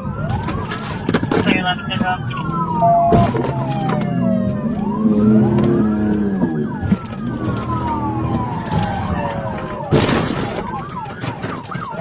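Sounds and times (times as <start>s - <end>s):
police siren wailing: 0.0s - 12.0s
car engine running: 1.6s - 11.1s.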